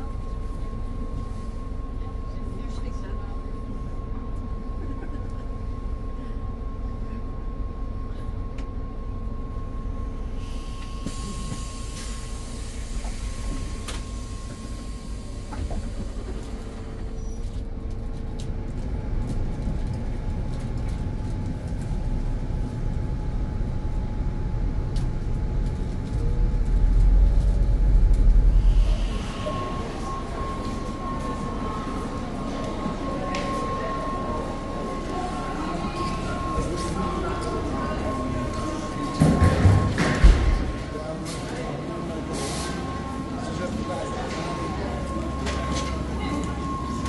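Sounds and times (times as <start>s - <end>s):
faint steady whine: 0.0s - 47.0s
passenger train rumbling: 0.0s - 47.0s
heavy deep rumble: 12.4s - 32.8s.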